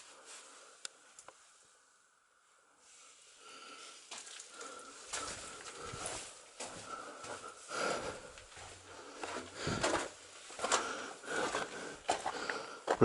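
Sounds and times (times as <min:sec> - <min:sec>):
person breathing heavily: 0:02.7 - 0:13.0
footsteps on loose rock: 0:08.5 - 0:13.0.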